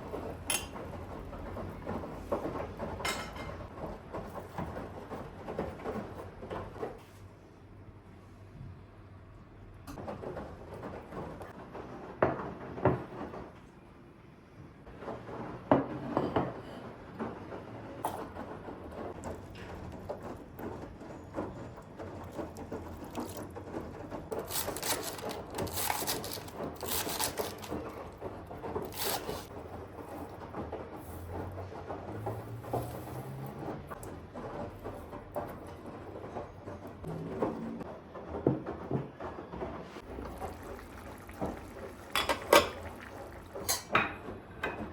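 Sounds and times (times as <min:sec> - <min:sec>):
scraping and rustling: 0:18.2 - 0:37.6.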